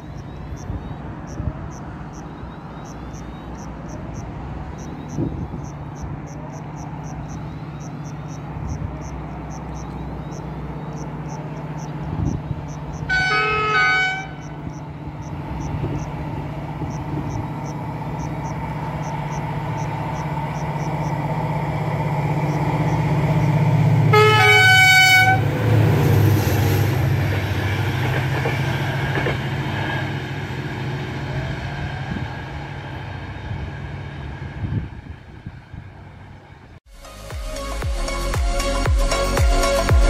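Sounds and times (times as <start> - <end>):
train passing at speed: 0.0 - 36.8
locomotive horn: 13.1 - 14.8, 24.0 - 25.6.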